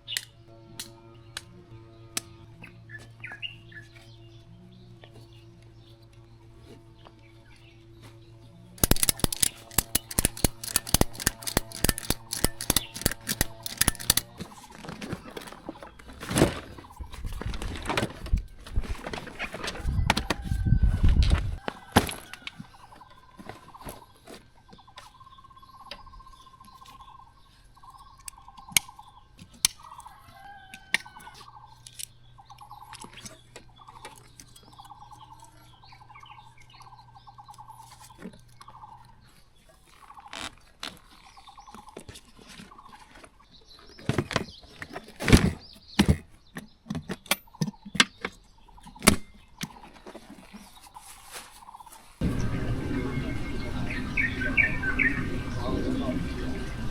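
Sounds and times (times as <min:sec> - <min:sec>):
gear clatter: 0:08.8 - 0:16.8
camping gear clicks and knocks: 0:08.8 - 0:25.2, 0:39.9 - 0:51.0
bird calling repeated notes: 0:52.2 - 0:56.9.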